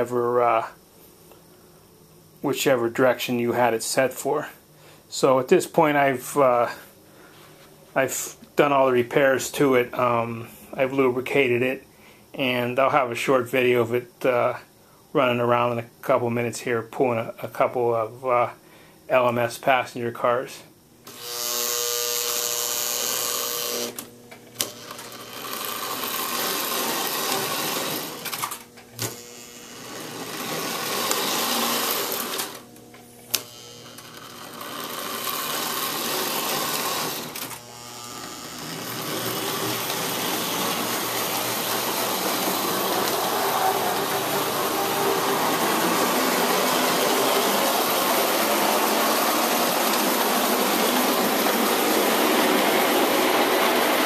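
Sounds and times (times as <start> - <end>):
model locomotive motor whirring: 21.1 - 54.0.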